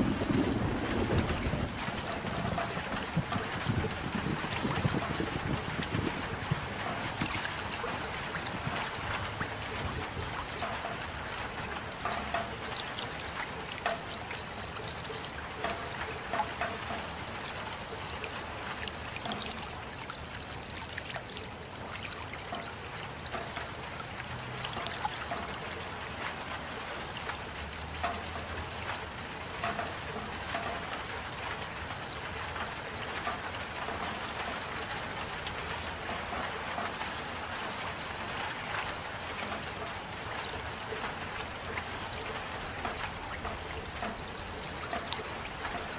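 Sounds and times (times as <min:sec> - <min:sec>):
steady rain: 0:00.0 - 0:45.9
trickle of running water: 0:00.0 - 0:45.9
drops ticking close by: 0:27.2 - 0:31.1.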